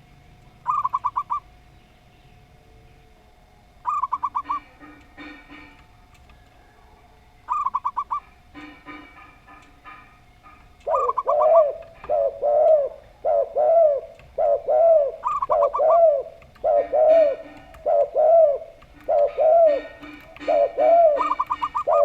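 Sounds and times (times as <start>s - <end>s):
doves cooing: 0.5s - 1.6s, 2.6s - 22.0s
short stuttering bird notes: 3.8s - 5.9s, 7.5s - 22.0s.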